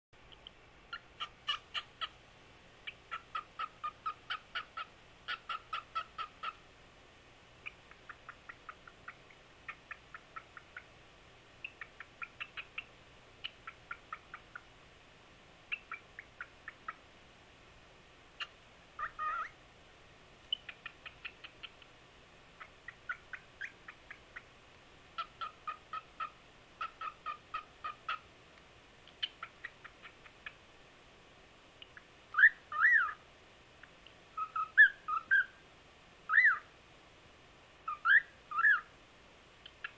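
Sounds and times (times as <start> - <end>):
cockatiel harsh call: 0.9 - 2.2, 2.8 - 6.6, 18.4 - 19.6, 25.2 - 28.2, 32.0 - 33.2, 34.4 - 35.6, 36.3 - 36.7, 37.8 - 38.9
cockatiel whistling: 18.4 - 19.6, 22.6 - 24.4, 31.9 - 33.2, 34.4 - 35.6, 36.3 - 36.7, 37.9 - 38.9.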